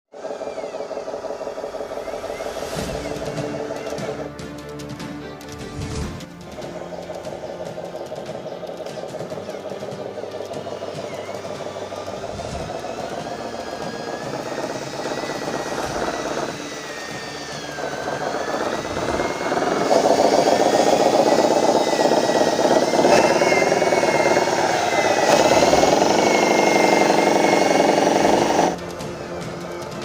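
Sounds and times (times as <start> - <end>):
toy truck electric motor whining: 0.1 - 30.0.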